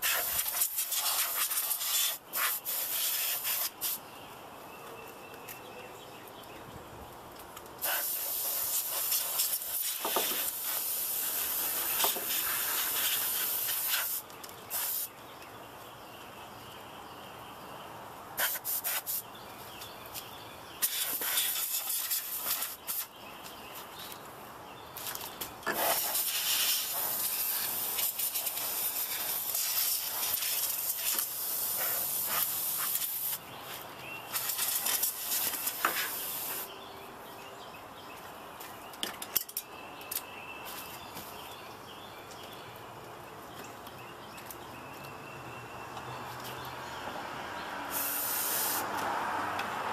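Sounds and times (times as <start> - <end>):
compressed air hissing: 0.0 - 4.0, 7.8 - 15.1, 18.4 - 19.3, 20.8 - 23.2, 25.7 - 33.4, 34.3 - 36.7, 47.9 - 48.9.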